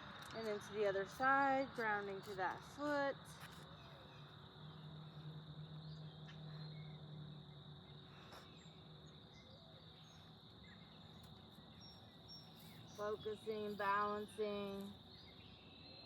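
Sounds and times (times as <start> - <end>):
low hum: 0.0 - 10.8
insects trilling: 0.0 - 16.0
faint bird chirps: 3.3 - 16.0.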